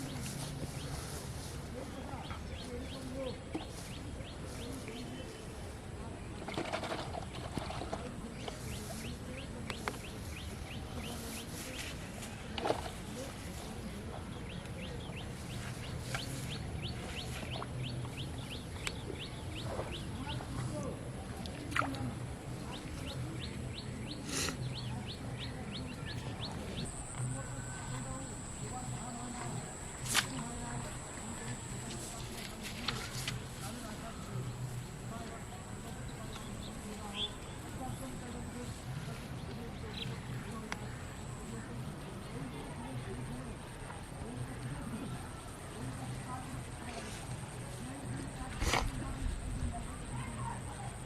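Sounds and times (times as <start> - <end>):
rustling noise: 0.0 - 5.7, 6.5 - 14.1, 26.8 - 35.2.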